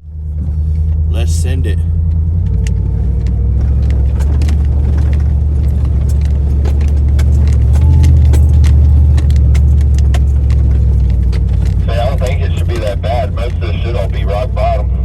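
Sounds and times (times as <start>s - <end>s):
truck engine droning: 0.0s - 15.0s
vehicle body jolting: 2.4s - 14.0s
loose items rattling: 3.8s - 12.9s.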